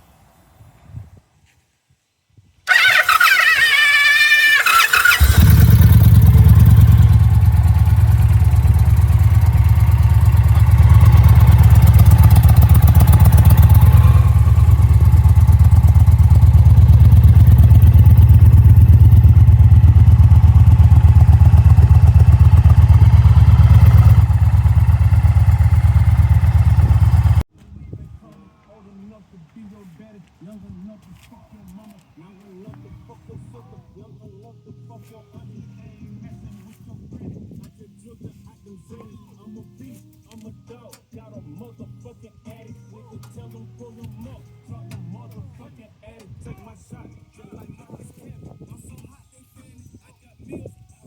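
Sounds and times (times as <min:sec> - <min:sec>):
motorcycle engine running: 0:02.7 - 0:27.4
motorcycle starter whirring: 0:02.7 - 0:27.4.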